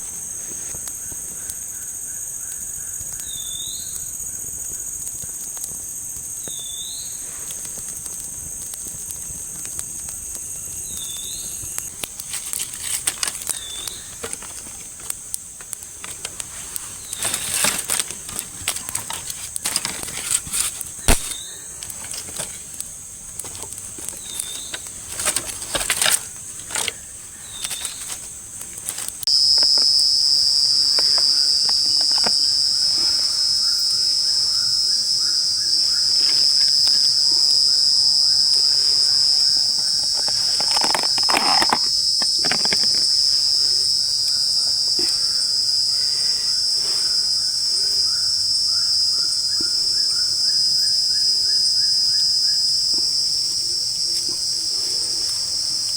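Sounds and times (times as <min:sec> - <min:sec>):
quiet crackling and clicks: 0:00.0 - 0:44.4
night insects droning: 0:00.0 - 0:55.9.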